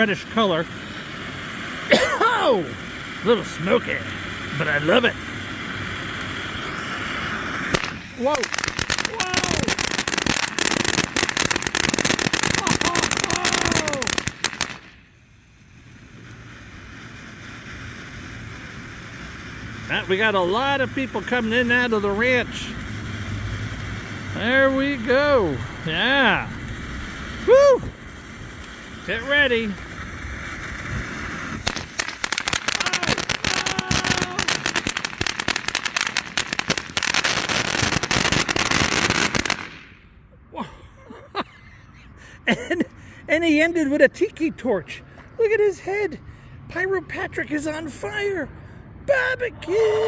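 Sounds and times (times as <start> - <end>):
firework crackling and popping: 0.0 - 40.2.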